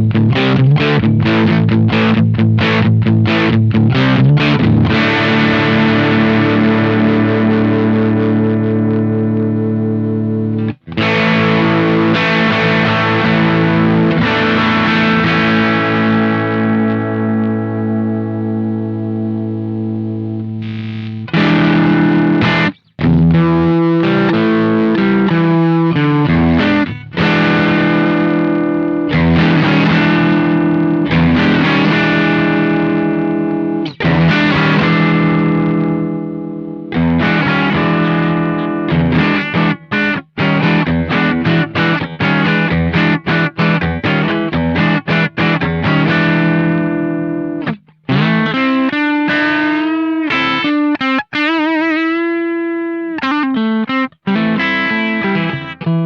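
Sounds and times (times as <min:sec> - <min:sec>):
distorted electric guitar chords: 0:00.0 - 0:56.0.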